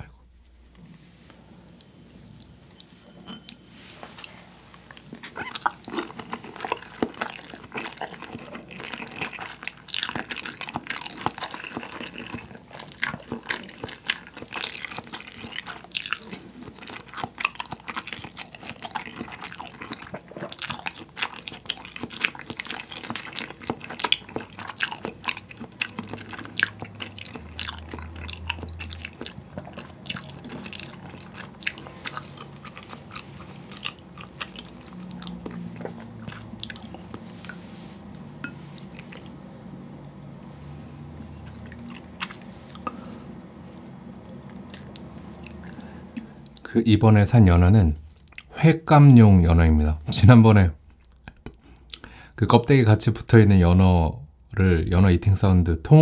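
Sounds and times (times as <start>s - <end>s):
wet chewing: 4.7s - 39.4s, 41.1s - 46.7s, 48.1s - 48.5s, 50.8s - 52.2s.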